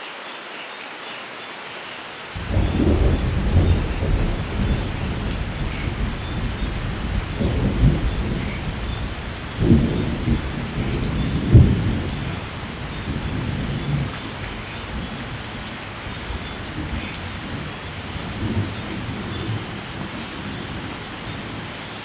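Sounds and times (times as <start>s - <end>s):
steady rain: 0.0s - 22.0s
rolling thunder: 2.4s - 21.7s.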